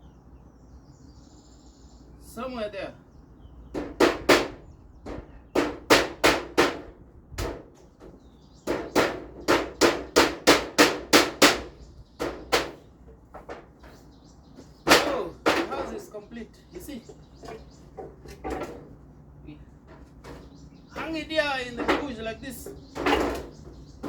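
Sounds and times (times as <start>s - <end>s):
hammer striking nails into metal: 3.8s - 7.7s, 8.7s - 12.8s.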